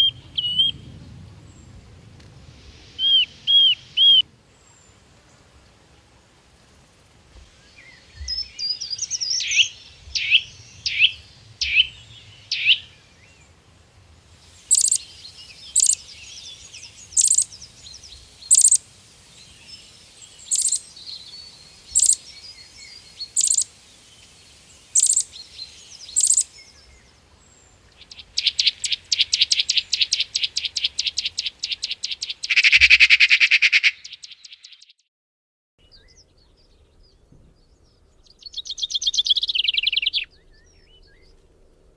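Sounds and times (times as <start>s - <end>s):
songbirds calling: 0.0s - 13.8s, 14.4s - 35.0s, 35.8s - 41.9s
fast bird trill: 3.0s - 4.2s, 8.3s - 12.9s, 14.7s - 16.1s, 17.1s - 17.6s, 18.5s - 18.8s, 20.5s - 20.9s, 21.9s - 22.3s, 23.2s - 23.7s, 25.0s - 25.3s, 26.1s - 26.5s, 28.0s - 34.9s, 38.4s - 40.3s.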